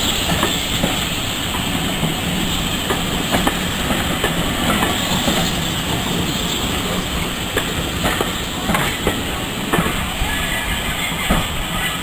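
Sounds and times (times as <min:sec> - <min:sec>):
train rumbling along track: 0:00.0 - 0:12.0
wheels clacking over rails: 0:00.0 - 0:12.0.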